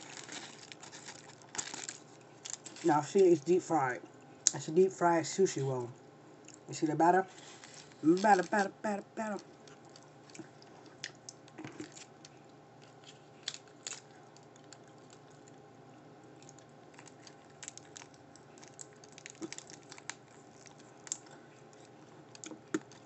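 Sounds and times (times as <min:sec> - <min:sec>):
plastic packet crinkling and tearing: 0:00.0 - 0:03.2, 0:07.3 - 0:10.4, 0:11.0 - 0:15.5, 0:16.4 - 0:23.0.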